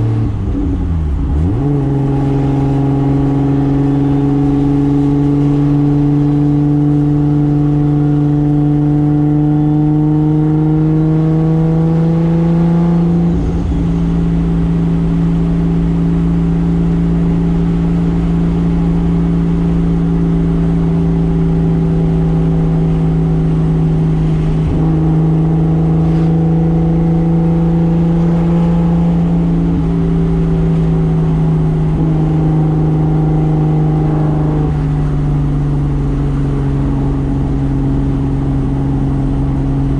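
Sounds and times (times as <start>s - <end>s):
car engine running at mid revs: 0.0s - 39.9s.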